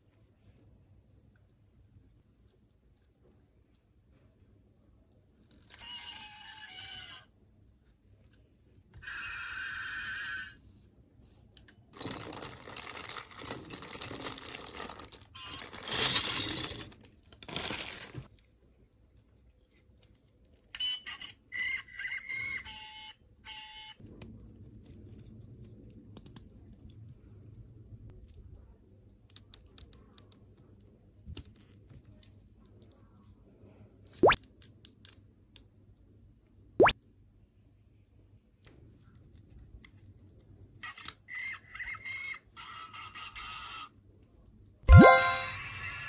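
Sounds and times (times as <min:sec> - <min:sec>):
plastic packaging crinkling: 0:12.0 - 0:18.3
small plastic clicks: 0:29.2 - 0:33.0
electronic toy beeps: 0:44.9 - 0:46.0.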